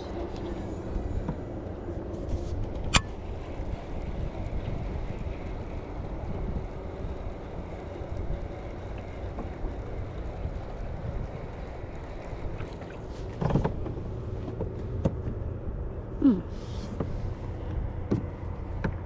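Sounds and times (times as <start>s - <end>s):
wind and water rumble on microphone: 0.1s - 16.0s.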